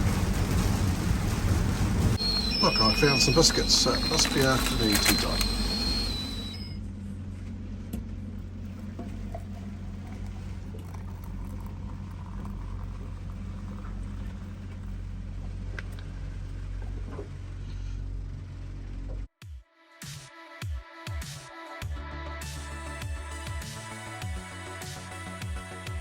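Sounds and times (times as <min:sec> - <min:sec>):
rain patter: 0:00.0 - 0:06.7
wind rumbling: 0:00.0 - 0:06.8.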